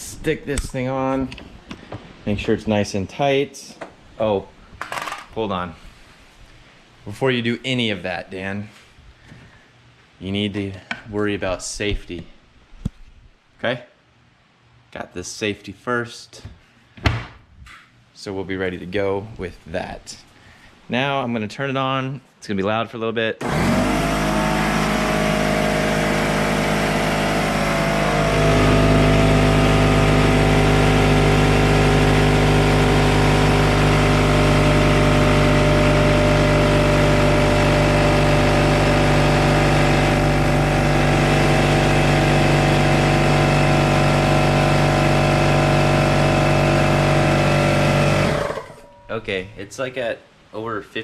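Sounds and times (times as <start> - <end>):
air compressor humming: 23.4 - 49.0.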